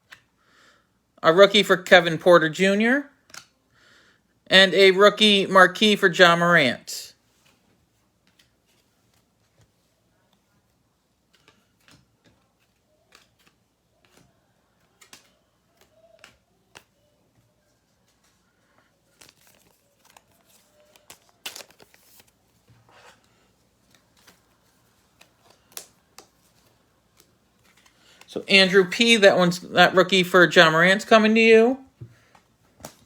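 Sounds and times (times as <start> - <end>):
trading cards and wrappers crinkling: 7.3 - 31.4.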